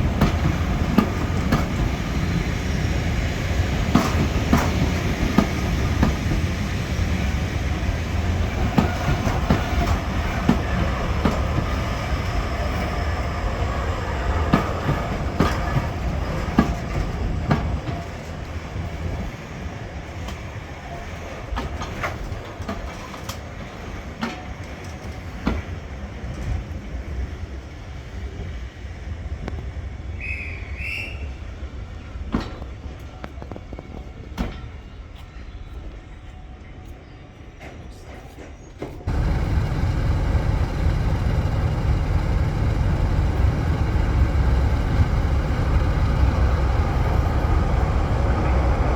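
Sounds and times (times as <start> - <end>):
train rumbling: 0.0 - 36.3, 37.5 - 48.9
wheels clicking over rail joints: 8.0 - 12.4, 39.1 - 48.9.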